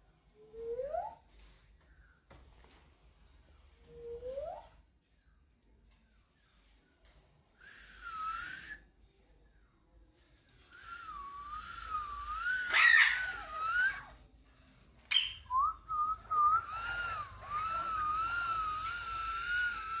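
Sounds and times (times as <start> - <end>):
wavering long whistle: 10.9 - 12.8, 15.5 - 20.0.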